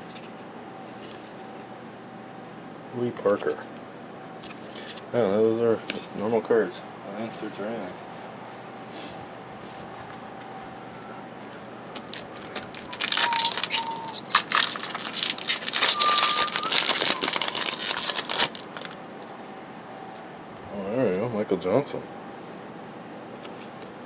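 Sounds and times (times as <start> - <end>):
wrapper tearing and crinkling: 11.9 - 19.3.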